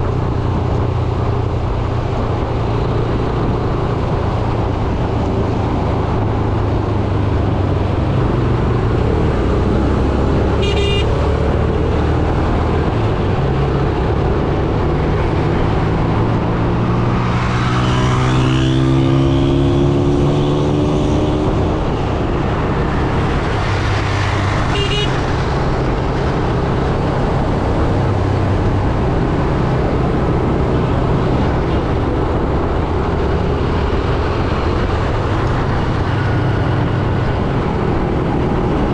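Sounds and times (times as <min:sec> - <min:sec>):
high horn beeps: 0:10.6 - 0:11.2, 0:24.7 - 0:25.2.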